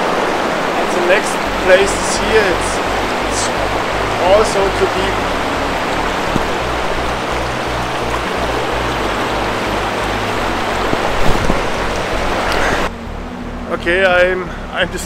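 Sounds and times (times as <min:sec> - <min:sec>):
river water rushing: 0:00.0 - 0:13.8.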